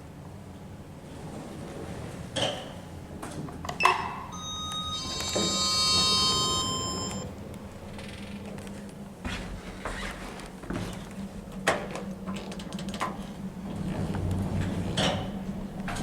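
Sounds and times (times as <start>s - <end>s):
steady high tones: 4.3s - 7.3s.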